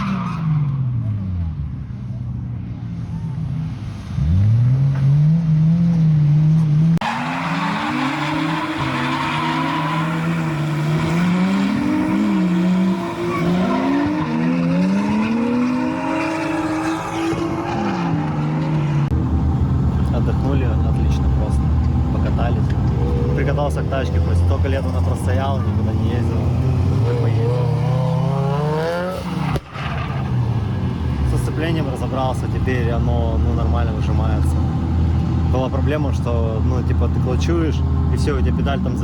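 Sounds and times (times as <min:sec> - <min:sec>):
car engine revving: 0:03.7 - 0:39.0
tyres squealing: 0:07.0 - 0:18.6.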